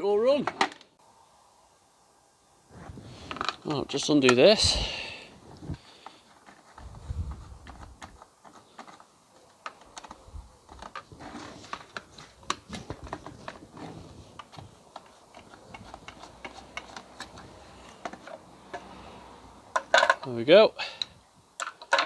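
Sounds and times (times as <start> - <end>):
hand tool and metal parts clicking: 14.4 - 19.0, 19.7 - 20.4.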